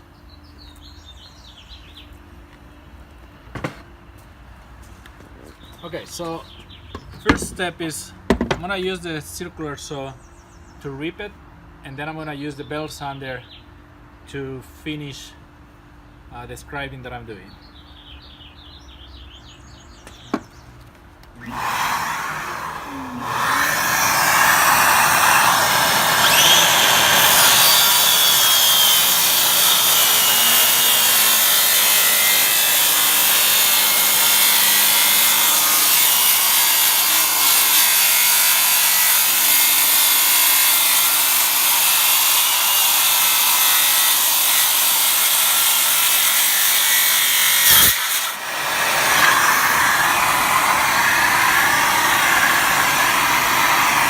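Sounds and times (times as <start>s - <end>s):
dust extraction vacuum: 21.3s - 54.0s
circular saw cutting wood: 21.4s - 54.0s.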